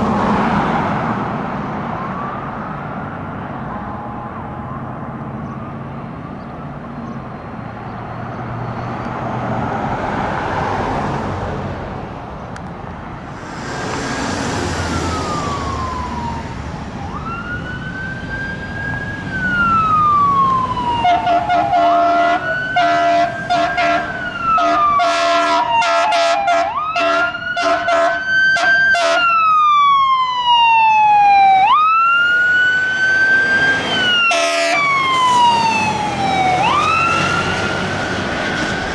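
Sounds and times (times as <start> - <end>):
fire engine siren wailing: 0.0 - 6.9, 13.2 - 38.9
passing traffic: 0.0 - 38.9
short horn blasts: 21.2 - 28.1, 34.3 - 34.9.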